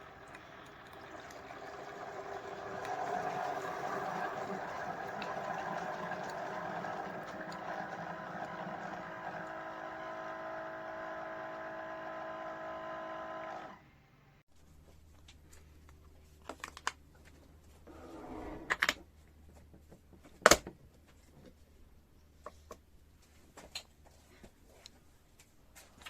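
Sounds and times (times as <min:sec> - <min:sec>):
coffee maker pump running: 0:00.0 - 0:13.9.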